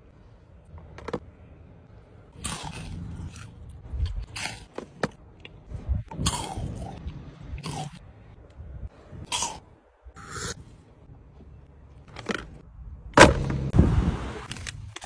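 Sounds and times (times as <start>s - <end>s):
crunchy sweets being chewed: 2.3s - 8.0s, 9.2s - 9.6s.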